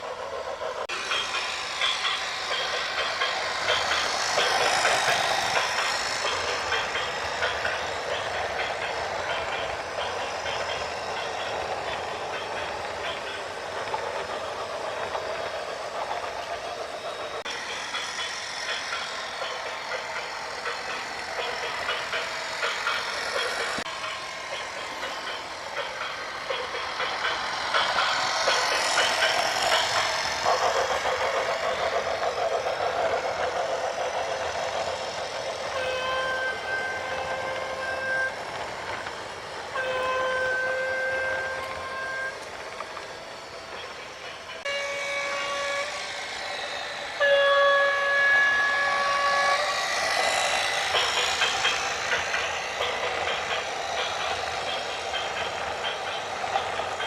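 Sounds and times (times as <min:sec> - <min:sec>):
horn blasts: 0:39.8 - 0:42.4, 0:44.7 - 0:46.0, 0:47.2 - 0:49.6.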